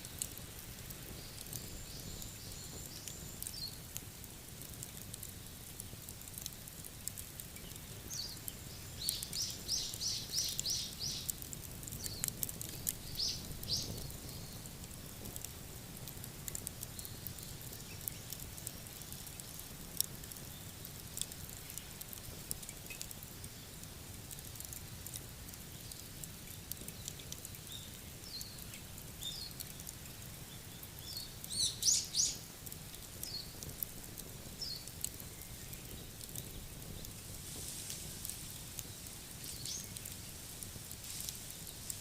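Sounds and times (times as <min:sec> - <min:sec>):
wood fire crackling and popping: 0:00.0 - 0:42.0
bird chirping: 0:08.2 - 0:11.3, 0:13.0 - 0:14.6, 0:31.0 - 0:32.4.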